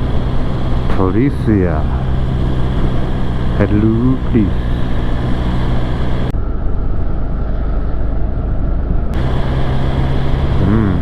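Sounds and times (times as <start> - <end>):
motorcycle engine running: 0.0 - 6.3, 9.2 - 11.0
wind and road noise: 0.0 - 11.0.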